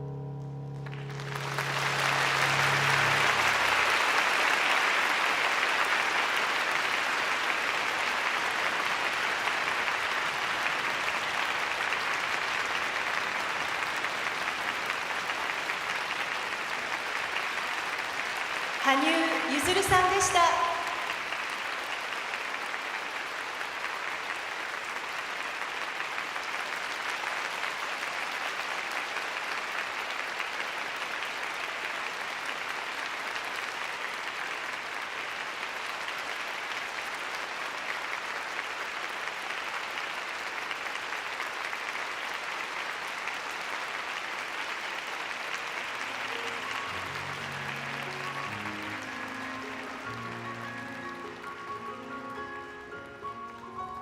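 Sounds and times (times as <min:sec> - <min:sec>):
music notes: 0:00.0 - 0:04.3, 0:46.0 - 0:54.0
audience applauding: 0:00.8 - 0:54.0.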